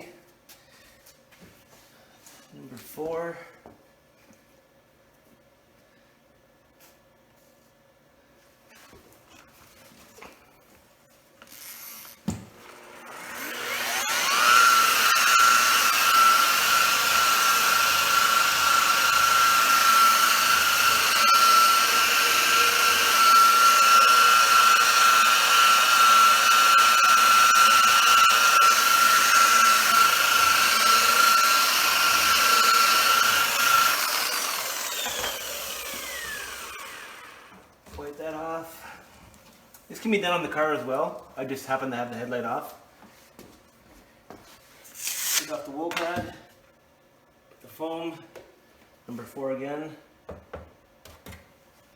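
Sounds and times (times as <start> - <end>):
rotary buffer motor whining: 11.5 - 37.6.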